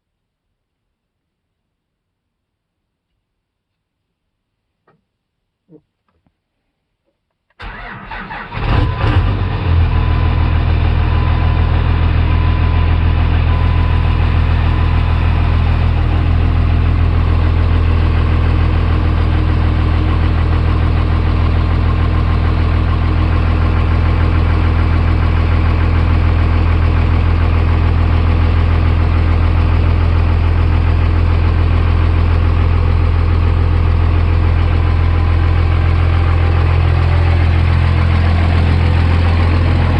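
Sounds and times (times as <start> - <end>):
diesel engine cranking: 7.6 - 26.2, 35.2 - 39.9
diesel engine idling: 7.6 - 39.9.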